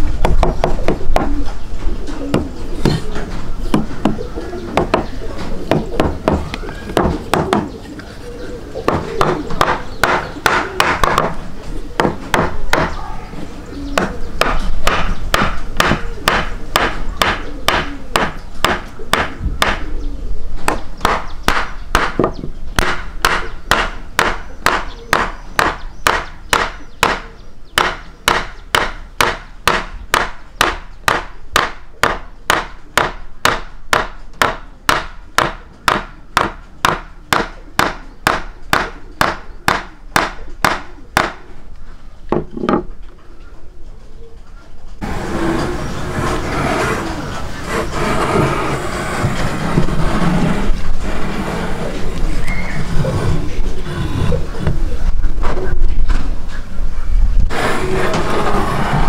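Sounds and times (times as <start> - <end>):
sharp rhythmic knocks: 4.8 - 5.0, 5.7 - 7.7, 8.9 - 11.4, 12.0 - 13.0, 14.0 - 19.8, 20.7 - 27.2, 27.8 - 41.4
rustling noise: 41.5 - 59.0.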